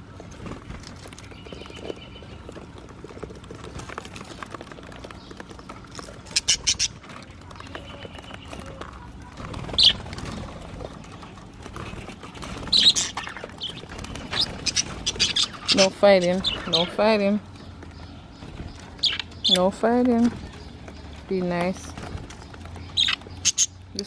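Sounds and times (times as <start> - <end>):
budgerigars chirping and squawking: 5.1 - 24.0.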